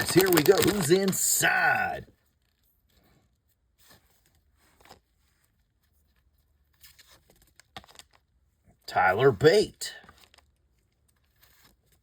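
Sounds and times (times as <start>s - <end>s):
trading cards rustling: 0.0s - 2.6s.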